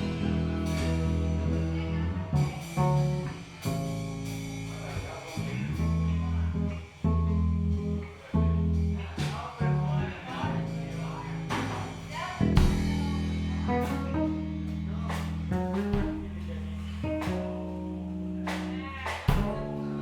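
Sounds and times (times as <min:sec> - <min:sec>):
electric guitar chords: 0:00.0 - 0:04.8, 0:12.4 - 0:20.0
bass notes: 0:00.0 - 0:20.0
drum hits: 0:11.5 - 0:13.2, 0:15.1 - 0:16.4, 0:18.5 - 0:19.8.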